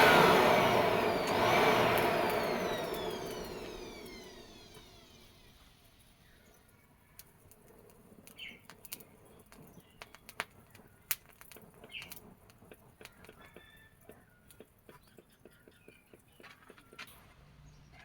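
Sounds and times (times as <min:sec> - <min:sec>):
faint clicks and taps: 0:07.2 - 0:17.2.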